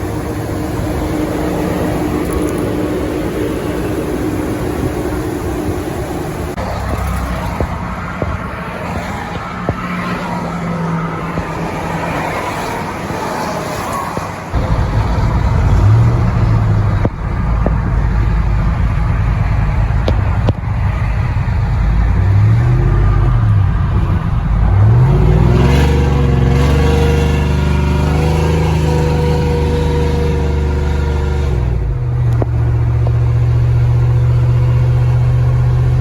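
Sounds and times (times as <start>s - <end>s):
steady hum: 0.0s - 8.5s, 14.6s - 26.5s
truck engine revving: 0.0s - 36.0s.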